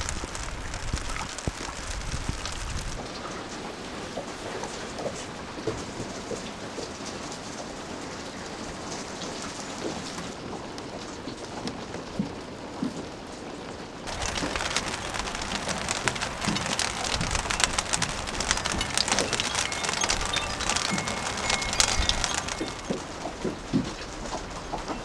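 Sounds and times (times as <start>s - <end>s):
heavy rain pouring: 0.0s - 3.1s, 14.1s - 23.3s.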